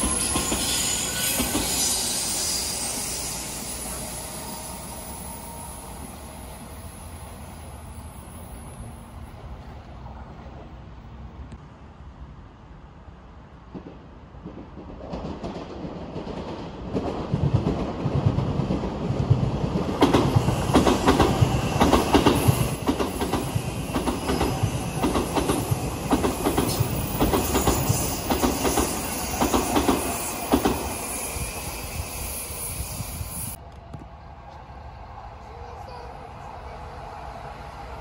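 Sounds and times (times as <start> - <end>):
electric train passing: 0.0 - 11.4, 13.7 - 38.0
wheels clacking over rail joints: 13.8 - 31.0.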